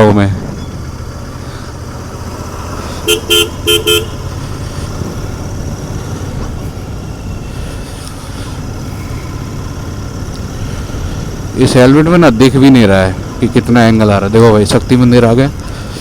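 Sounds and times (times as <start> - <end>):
motorcycle engine running: 0.0 - 16.0
road and wind noise: 0.0 - 16.0
vehicle horn short toots: 3.0 - 4.3.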